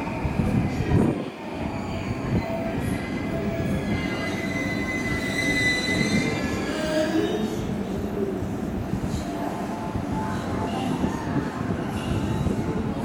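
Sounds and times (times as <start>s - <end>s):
high steady squeal: 4.1s - 7.2s.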